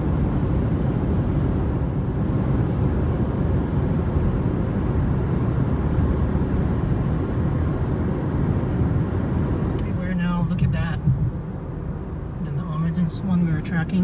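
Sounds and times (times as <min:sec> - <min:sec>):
car engine droning: 0:04.2 - 0:14.0.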